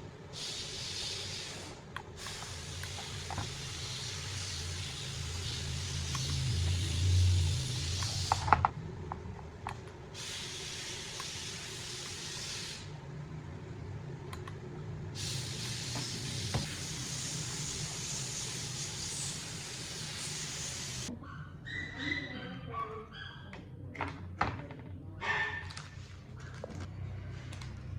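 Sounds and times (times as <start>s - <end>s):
spray hissing: 0.3s - 8.7s, 10.1s - 12.9s, 15.2s - 21.1s.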